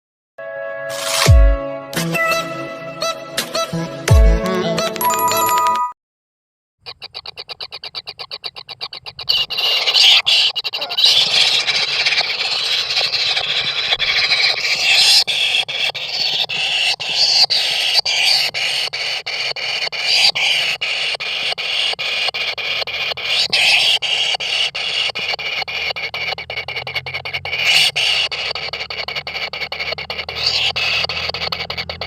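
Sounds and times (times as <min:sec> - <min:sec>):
chicks begging calls: 0:06.9 - 0:32.0.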